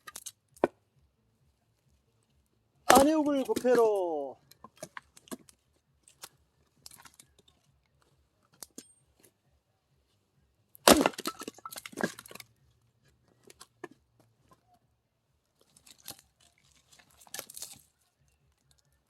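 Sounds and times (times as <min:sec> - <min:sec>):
axe striking log: 0:02.9 - 0:04.2, 0:10.8 - 0:12.4
wood cracking and splintering: 0:02.9 - 0:05.5, 0:10.8 - 0:12.5, 0:15.6 - 0:18.0.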